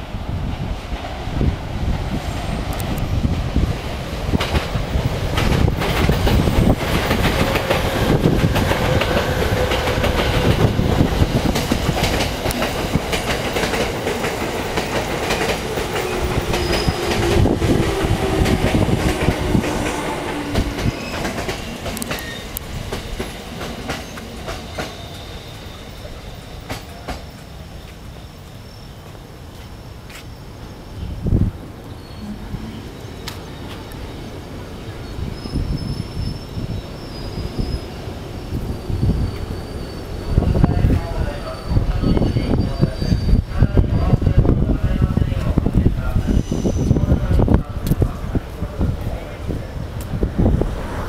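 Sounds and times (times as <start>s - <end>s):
train wheels clicking over rail joints: 4.2s - 30.3s
braking train whine: 4.4s - 44.6s.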